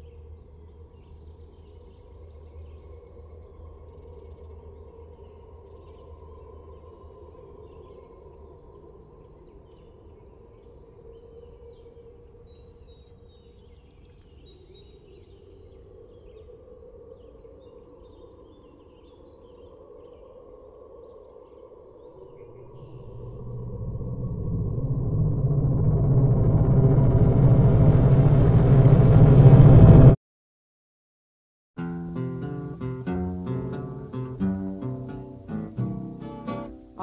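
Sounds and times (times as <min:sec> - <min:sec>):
deep rumble: 0:22.2 - 0:30.2
steady low hum: 0:22.2 - 0:30.2
bird chirps: 0:31.8 - 0:37.0.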